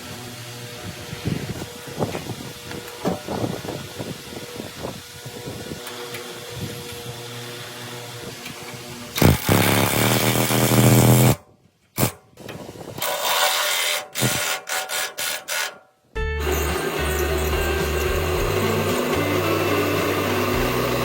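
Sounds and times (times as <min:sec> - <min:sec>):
power machinery humming: 0:16.2 - 0:21.0.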